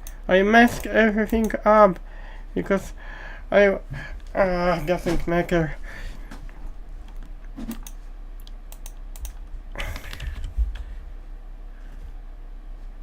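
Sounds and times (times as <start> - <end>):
low mains hum: 0.0 - 13.0
computer keyboard clicks: 7.7 - 9.4.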